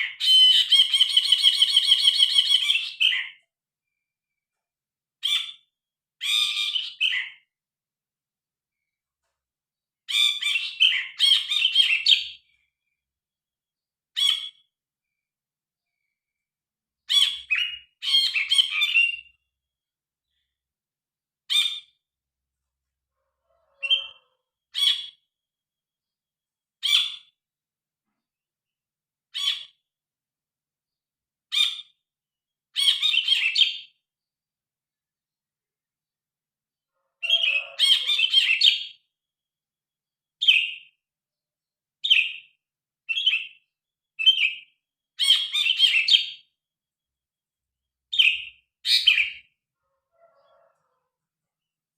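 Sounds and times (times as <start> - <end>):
bird singing chirping phrases: 0.0 - 4.4, 5.2 - 7.5, 10.1 - 13.0, 13.8 - 19.5, 32.8 - 34.0, 37.2 - 39.1, 40.4 - 41.0, 42.0 - 46.6, 48.1 - 49.6.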